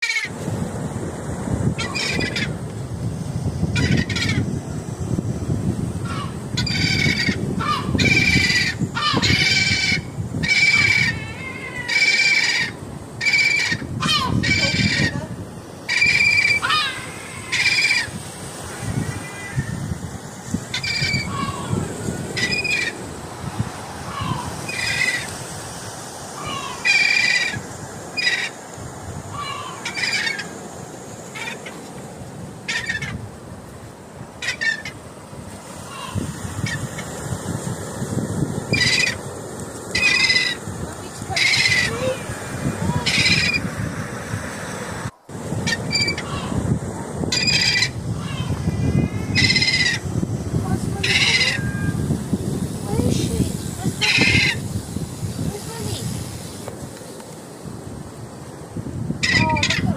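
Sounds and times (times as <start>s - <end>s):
gull calling: 0.0s - 0.4s, 1.8s - 2.6s, 3.7s - 4.5s, 6.0s - 15.3s, 15.9s - 18.2s, 18.8s - 19.8s, 20.7s - 23.0s, 24.1s - 25.3s, 26.4s - 27.6s, 28.2s - 28.6s, 29.3s - 30.6s, 31.3s - 31.8s, 32.7s - 33.2s, 34.4s - 35.0s, 35.8s - 37.1s, 38.7s - 39.2s, 39.9s - 40.7s, 41.3s - 42.3s, 43.0s - 43.7s, 45.6s - 46.6s, 47.3s - 50.1s, 50.9s - 52.1s, 53.9s - 54.6s, 59.2s - 59.9s.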